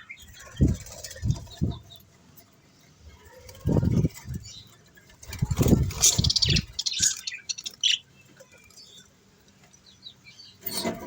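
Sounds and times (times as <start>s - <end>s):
budgies chirping and chattering: 0.0s - 2.1s, 3.2s - 9.1s.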